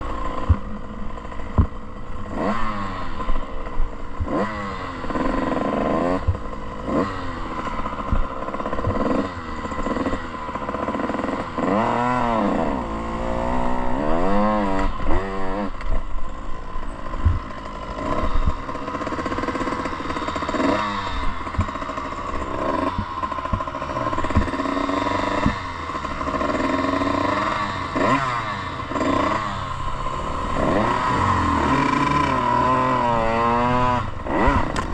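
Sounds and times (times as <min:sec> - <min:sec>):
motocross bike engine revving: 0:00.0 - 0:34.9
thumps over rough ground: 0:01.4 - 0:01.8, 0:17.1 - 0:18.7, 0:21.4 - 0:22.0, 0:22.7 - 0:24.7, 0:25.3 - 0:25.7.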